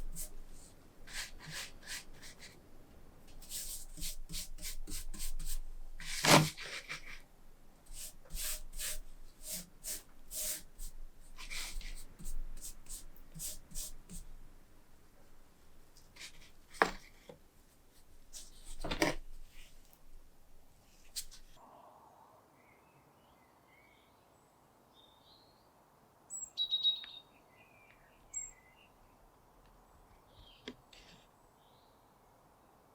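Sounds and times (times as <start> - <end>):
scraping and rubbing strokes: 0.0 - 2.6, 3.3 - 7.2, 7.9 - 14.3, 16.2 - 17.2, 17.9 - 19.8, 20.8 - 21.6.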